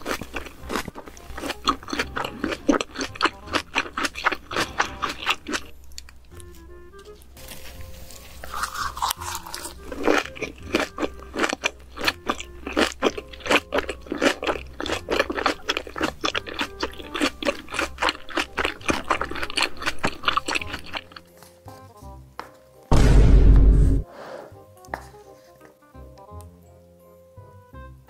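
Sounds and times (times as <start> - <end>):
crunchy wet chewing: 0.0 - 21.9.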